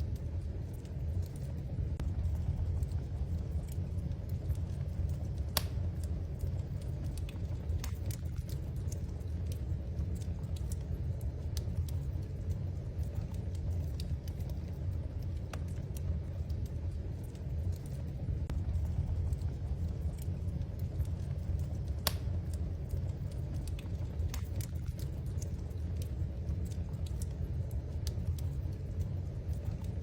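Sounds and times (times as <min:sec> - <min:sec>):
low rumble of flames: 0:00.0 - 0:30.0
wood fire crackling and popping: 0:00.0 - 0:30.0.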